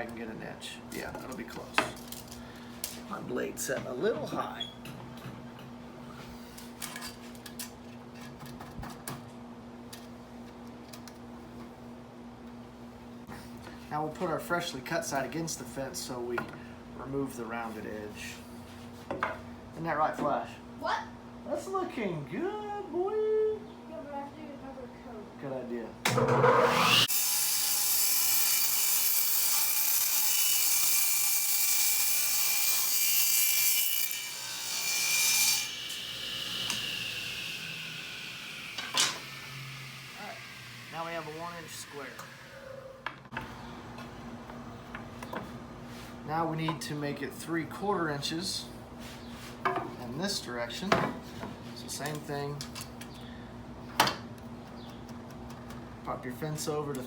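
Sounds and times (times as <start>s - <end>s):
table saw cutting wood: 26.1s - 42.6s
faint saw blade whine: 33.9s - 42.9s.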